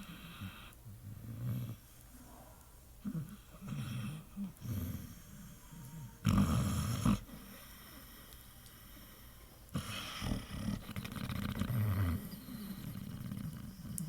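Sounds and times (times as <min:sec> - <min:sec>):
dog snoring: 0:00.0 - 0:01.9, 0:03.0 - 0:07.4, 0:09.7 - 0:14.0.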